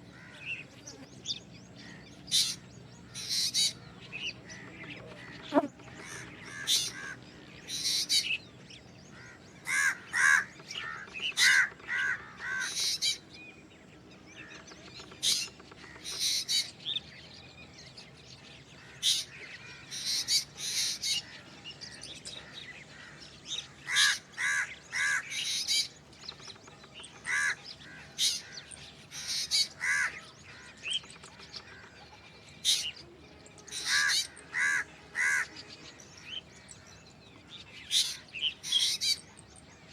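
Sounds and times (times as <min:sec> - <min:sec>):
bird harsh rasping calls: 0:03.2 - 0:03.8, 0:04.6 - 0:08.4, 0:09.1 - 0:13.2, 0:23.0 - 0:26.0, 0:27.0 - 0:31.9, 0:33.6 - 0:35.7, 0:37.9 - 0:39.3.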